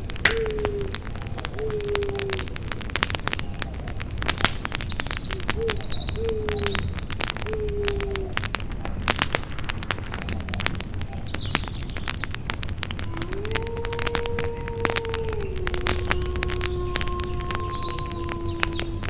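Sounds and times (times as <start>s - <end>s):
campfire crackling and popping: 0.0s - 19.0s
bird cooing: 0.3s - 2.6s, 5.3s - 9.0s, 13.0s - 19.0s.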